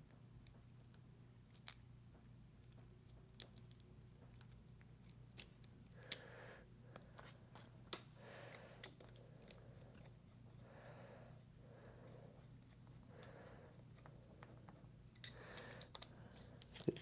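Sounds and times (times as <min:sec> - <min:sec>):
steady low hum: 0:00.0 - 0:17.0
clicks and taps of small parts: 0:02.6 - 0:06.2, 0:15.2 - 0:17.0.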